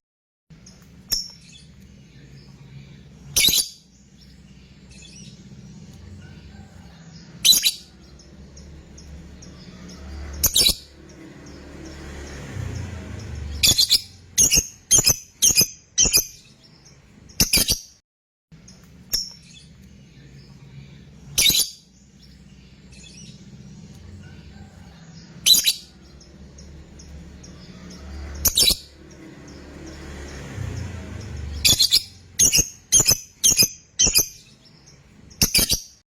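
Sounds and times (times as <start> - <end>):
bird shrill calls: 21.3 - 21.9.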